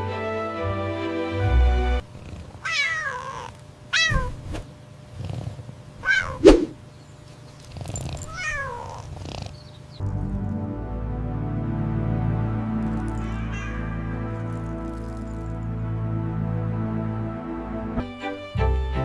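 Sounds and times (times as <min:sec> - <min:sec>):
small animal high calls: 0:02.6 - 0:04.4, 0:06.0 - 0:06.7, 0:13.2 - 0:14.9.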